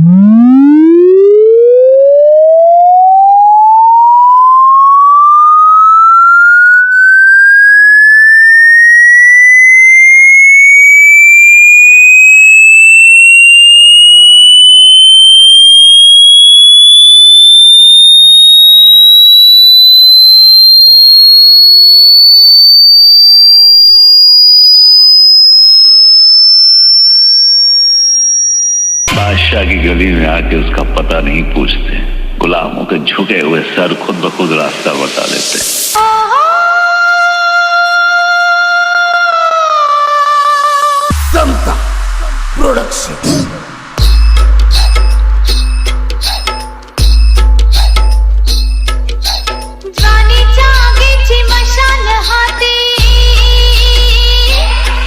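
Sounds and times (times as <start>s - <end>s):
electronic tone sweeping upward: 0.0s - 33.0s, 40.0s - 46.4s.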